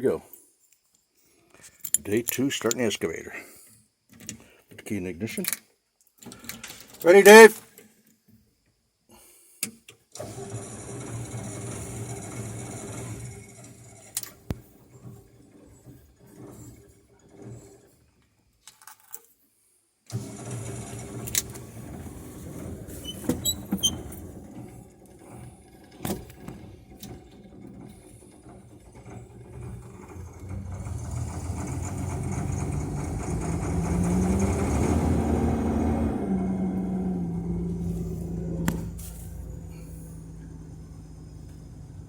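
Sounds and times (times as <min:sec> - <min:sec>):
diesel engine starting and running: 0:10.2 - 0:17.9, 0:20.1 - 0:42.0.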